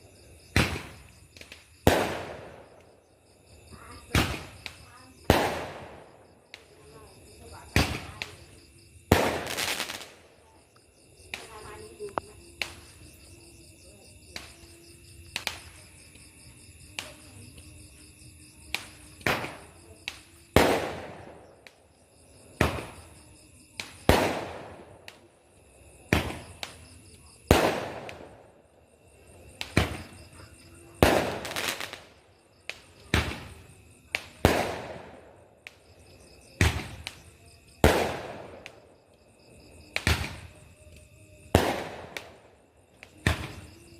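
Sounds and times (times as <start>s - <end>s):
fireworks banging: 0.5s - 2.9s, 3.7s - 6.8s, 7.5s - 10.2s, 18.7s - 21.8s, 22.5s - 23.1s, 23.8s - 25.2s, 26.1s - 26.9s, 29.6s - 32.1s, 32.7s - 35.8s.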